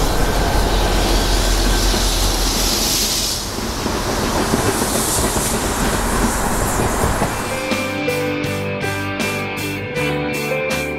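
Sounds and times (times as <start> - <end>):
train rumbling past: 0.0 - 8.6.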